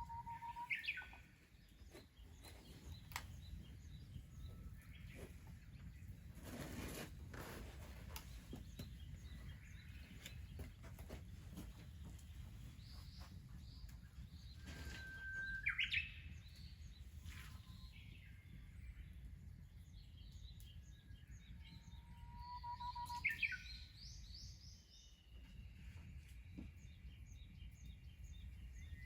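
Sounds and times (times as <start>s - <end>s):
bird whistled note with flourish: 0.0s - 1.0s, 14.8s - 16.2s, 22.2s - 23.7s
faint bird chirps: 0.0s - 6.2s, 12.8s - 29.0s.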